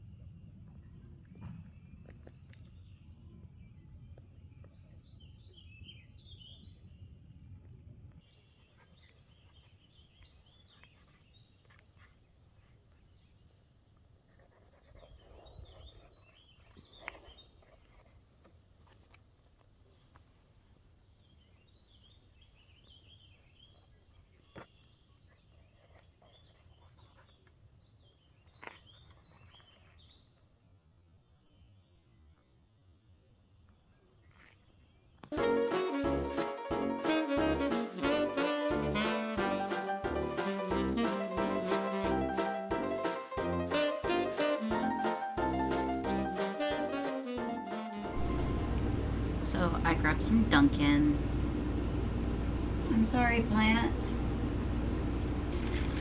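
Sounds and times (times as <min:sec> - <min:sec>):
small birds chirping: 0:08.1 - 0:18.2, 0:19.8 - 0:30.5.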